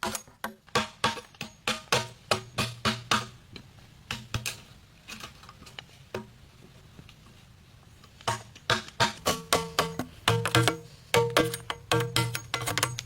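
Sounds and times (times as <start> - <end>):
blade knocking on bamboo: 0.8 - 3.4, 8.3 - 13.0.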